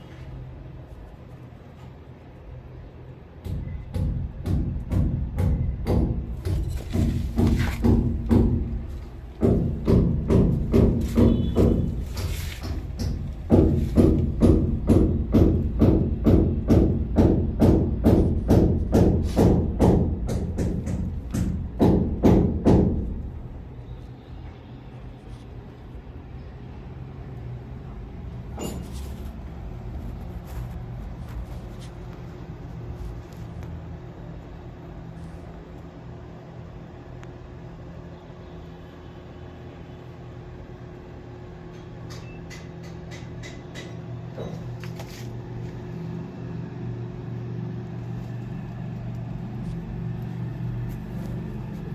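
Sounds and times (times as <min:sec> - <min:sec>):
low mechanical hum: 0:00.0 - 0:51.9
low hum and rumble: 0:43.8 - 0:51.9.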